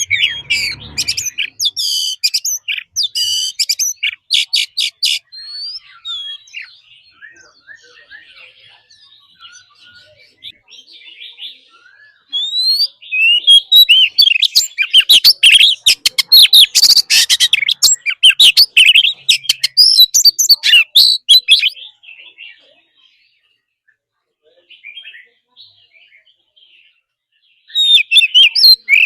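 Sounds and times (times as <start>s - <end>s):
bird singing varied whistles: 0.0s - 8.3s, 11.7s - 21.8s, 27.7s - 29.0s.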